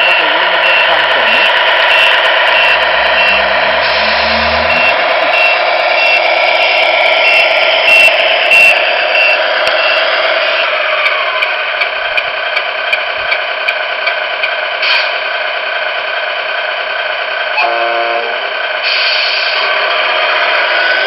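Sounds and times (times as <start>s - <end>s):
simulated truck engine running: 0.0s - 21.0s
truck horn blast: 1.3s - 5.6s, 17.6s - 18.5s.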